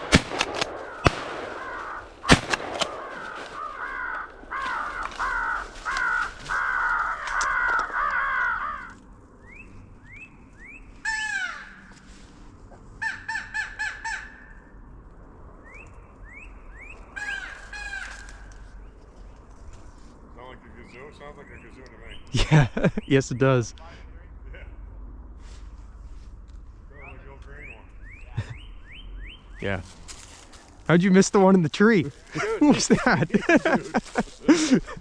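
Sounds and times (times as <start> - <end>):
crows cawing: 0.0 - 9.1, 11.0 - 12.1, 13.0 - 14.7, 17.2 - 18.7, 32.3 - 35.0.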